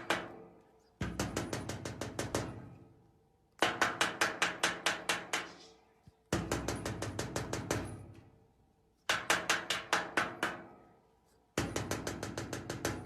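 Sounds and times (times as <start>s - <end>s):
rapid knocking on ringing object: 1.0s - 2.7s, 6.3s - 8.0s, 9.1s - 10.7s, 11.6s - 13.0s.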